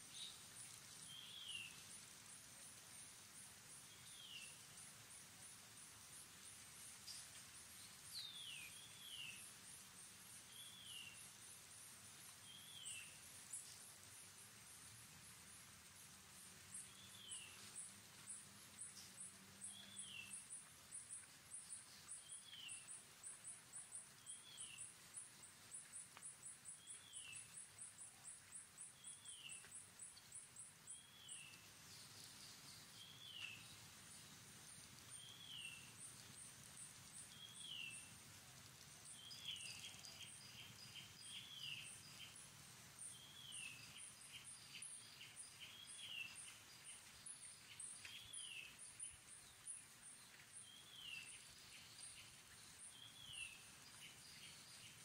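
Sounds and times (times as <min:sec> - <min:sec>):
bird chirping: 0:01.0 - 0:01.8, 0:03.9 - 0:04.8, 0:07.0 - 0:09.5, 0:10.3 - 0:11.4, 0:12.4 - 0:13.9, 0:16.7 - 0:38.1, 0:39.0 - 0:42.4, 0:43.0 - 0:55.0.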